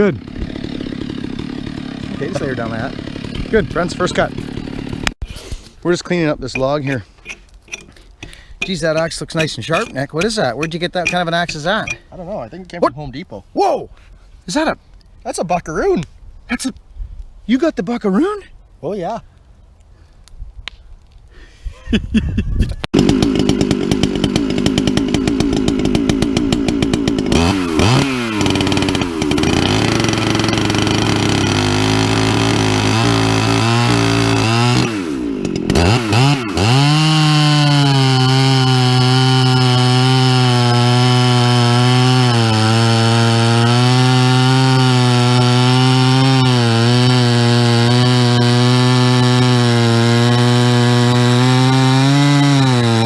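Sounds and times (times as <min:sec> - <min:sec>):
chainsaw revving and cutting log: 0:00.0 - 0:05.2, 0:08.3 - 0:12.1, 0:22.9 - 0:53.0.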